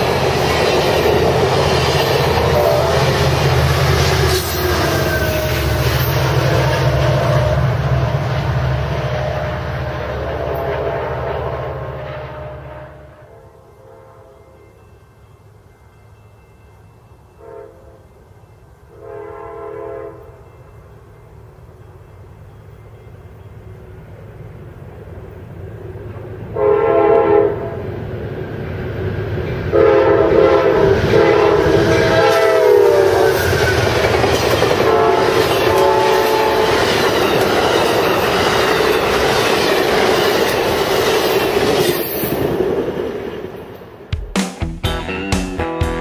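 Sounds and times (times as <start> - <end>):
train rush and wheel clatter: 0.0 - 13.2, 20.3 - 44.1
locomotive horn blasts: 2.4 - 3.3, 12.2 - 14.6, 17.4 - 18.2, 18.9 - 20.4, 26.6 - 27.8, 29.7 - 33.8, 34.8 - 36.9.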